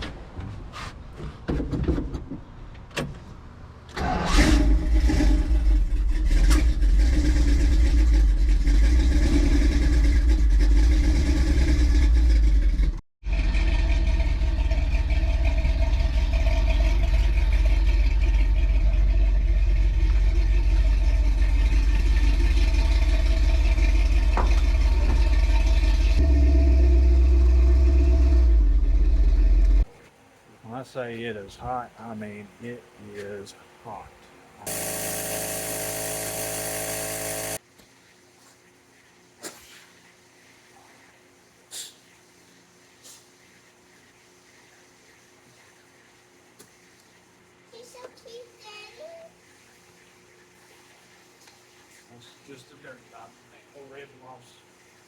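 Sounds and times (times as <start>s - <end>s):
engine knocking: 6.8s - 26.2s.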